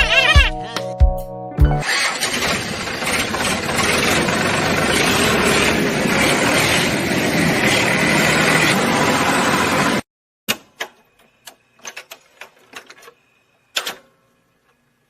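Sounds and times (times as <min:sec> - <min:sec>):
engine running: 0:01.8 - 0:10.0.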